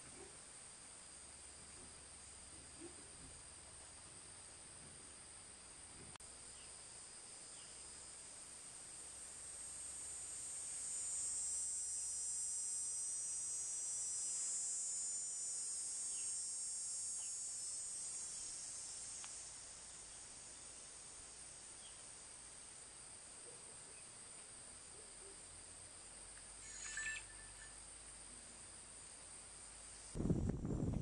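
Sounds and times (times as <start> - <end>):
high-pitched insect buzzing: 6.3 - 23.1, 26.3 - 28.2.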